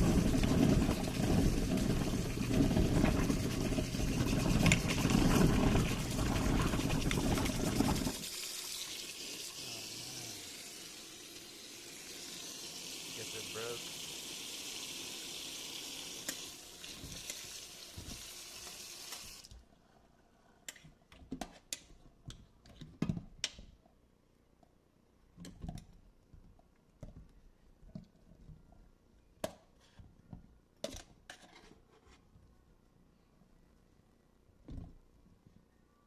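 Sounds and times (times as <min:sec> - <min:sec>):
tap water running into sink: 0:00.0 - 0:19.5.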